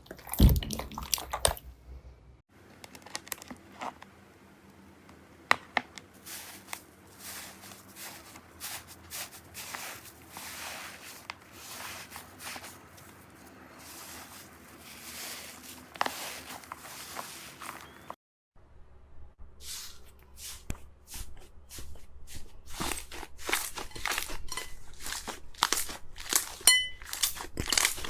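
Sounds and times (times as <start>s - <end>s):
slime squishing and crackling: 6.3s - 17.9s, 22.7s - 28.0s.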